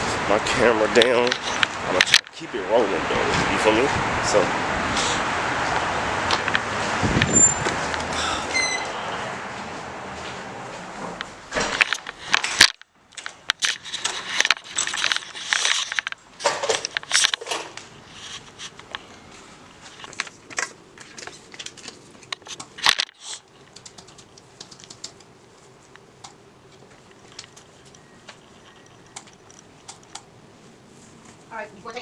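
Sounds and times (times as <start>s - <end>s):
camera rustling against clothing: 9.6s - 24.5s, 25.2s - 29.9s.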